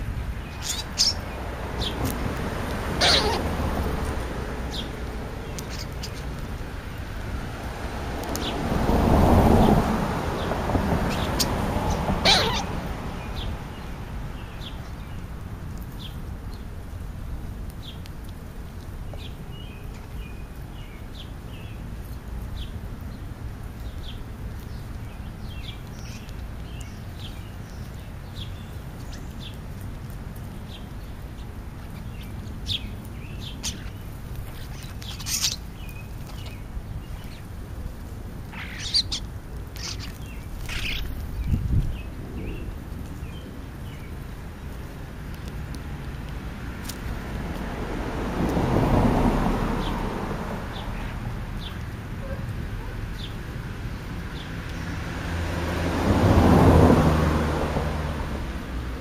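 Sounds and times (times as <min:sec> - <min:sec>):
birds chirping and calling: 0:00.0 - 0:07.0, 0:10.4 - 0:15.2, 0:30.6 - 0:37.5, 0:38.4 - 0:44.3.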